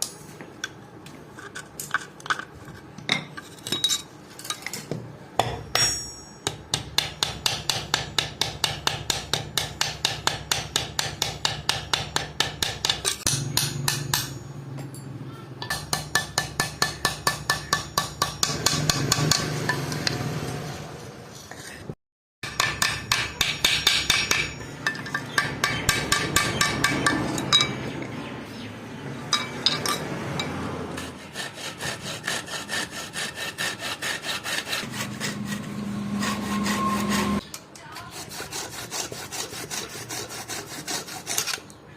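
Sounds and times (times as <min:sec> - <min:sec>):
hammer striking steel blade: 0:05.4 - 0:20.2, 0:22.4 - 0:27.8.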